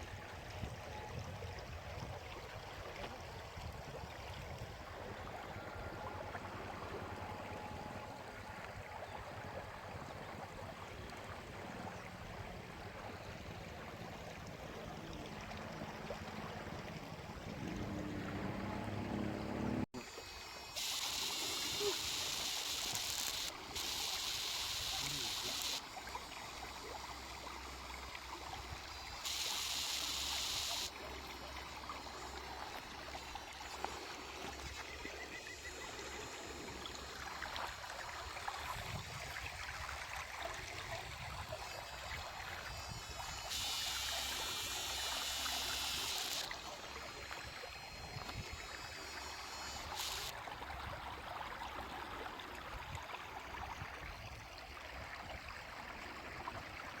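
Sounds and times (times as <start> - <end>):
higher hiss: 20.0 - 27.1, 28.8 - 31.0, 42.2 - 50.3
water running: 35.9 - 53.5.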